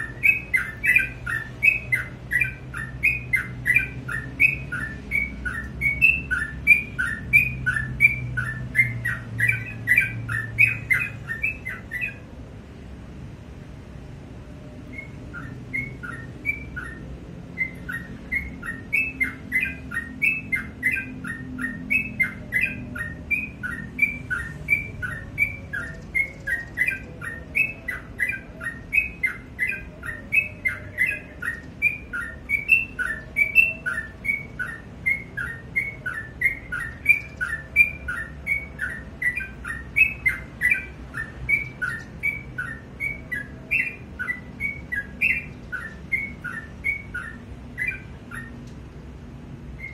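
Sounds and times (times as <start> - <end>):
bird singing whistled notes: 0.0 - 12.3, 14.8 - 48.8.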